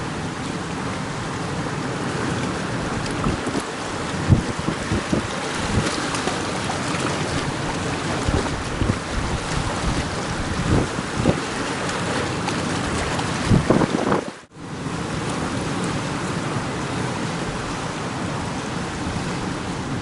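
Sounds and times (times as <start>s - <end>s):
surf rushing: 0.0s - 20.0s
wind buffeting microphone: 2.6s - 14.5s.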